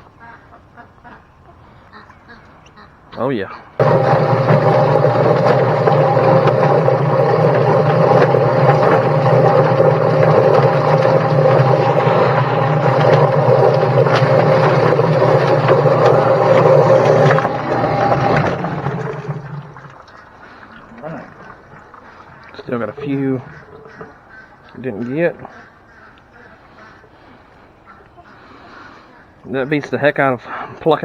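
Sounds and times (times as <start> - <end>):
chicken plucker motor hum: 3.8 - 24.8.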